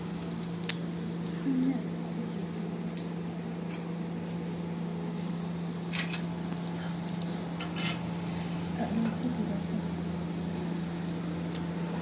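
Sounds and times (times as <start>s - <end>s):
steady low hum: 0.0s - 12.0s
metal utensils clinking on a pot: 7.6s - 8.1s.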